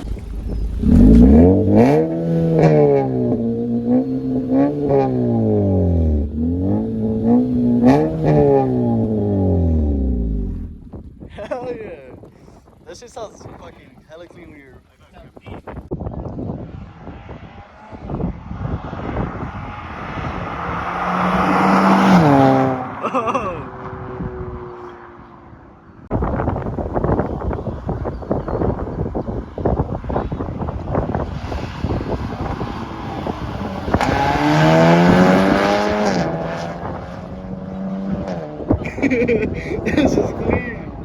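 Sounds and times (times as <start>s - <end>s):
car exhaust accelerating past: 0.0s - 11.1s, 16.5s - 23.0s, 23.7s - 41.0s
car exhaust drone: 0.0s - 11.2s.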